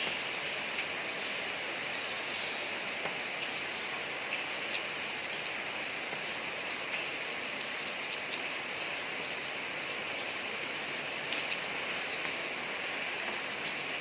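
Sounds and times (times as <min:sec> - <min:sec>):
rain falling on a street: 0:00.0 - 0:14.0
raindrop ticks: 0:11.2 - 0:12.5.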